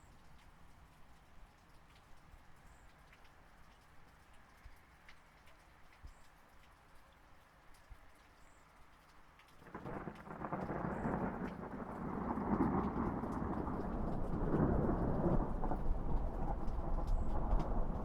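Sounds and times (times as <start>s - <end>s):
rain falling: 0.0s - 18.0s
thunder rumbling: 9.6s - 18.0s.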